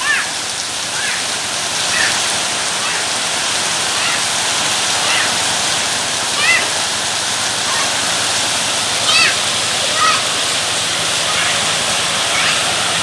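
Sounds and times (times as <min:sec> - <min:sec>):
faint high-pitched calls: 0:00.0 - 0:03.3, 0:03.9 - 0:04.4, 0:05.0 - 0:05.5, 0:06.4 - 0:06.8, 0:09.0 - 0:10.4, 0:11.2 - 0:12.8
heavy rain pouring: 0:00.0 - 0:13.0.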